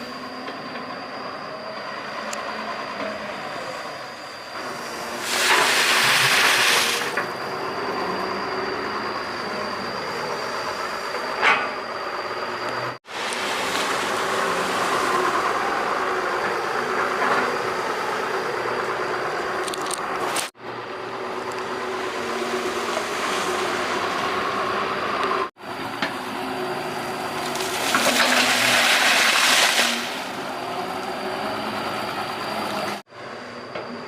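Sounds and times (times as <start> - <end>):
excavator engine and hydraulics: 0.0 - 34.0
loud rushing hiss: 4.8 - 8.2.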